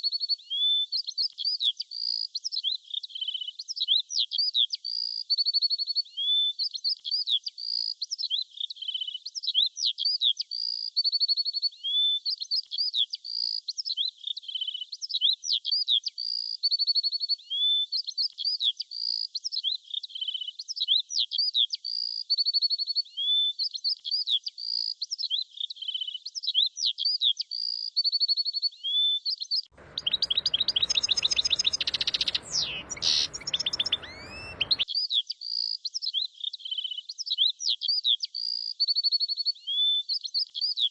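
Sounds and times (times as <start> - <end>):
rushing background noise: 29.8 - 34.8
songbirds chirping and trilling: 29.8 - 34.8.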